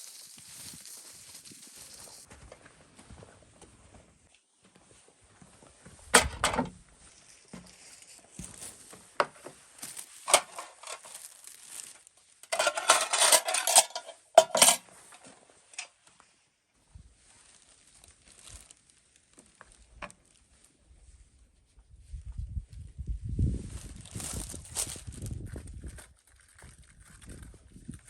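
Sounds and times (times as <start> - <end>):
rustling and scraping: 0.0 - 4.2, 4.8 - 16.4, 17.0 - 21.5, 23.5 - 28.0
metal cookware clinking: 12.5 - 14.8.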